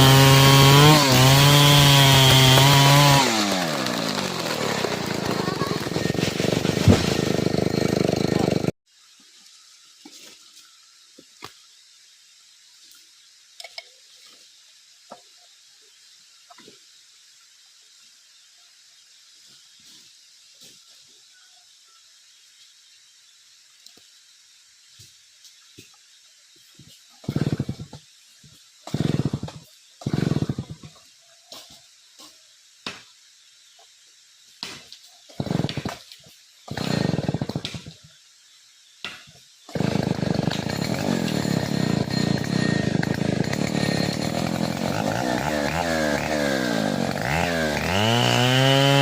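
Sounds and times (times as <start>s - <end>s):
chainsaw revving: 0.0s - 8.8s, 27.2s - 28.0s, 28.8s - 30.9s, 35.3s - 36.0s, 36.7s - 38.0s, 39.7s - 49.0s
falling water hiss: 3.2s - 7.3s, 8.9s - 40.5s.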